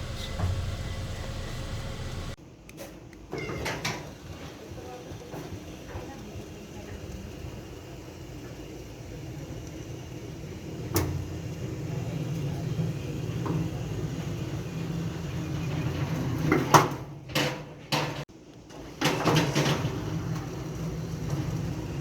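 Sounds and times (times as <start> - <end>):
gate motor humming: 0.0 - 2.4.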